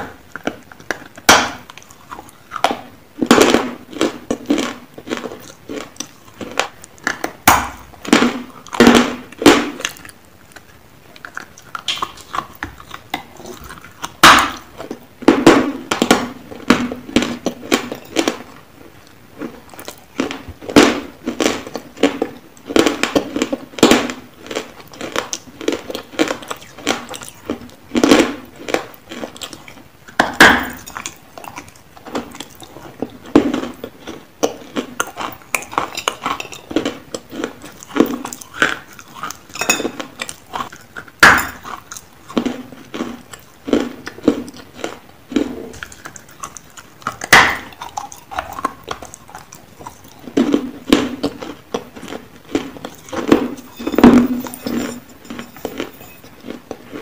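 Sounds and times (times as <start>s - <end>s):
crunchy biting and chewing: 0.0s - 57.0s
steel bowl clinks: 53.6s - 56.2s.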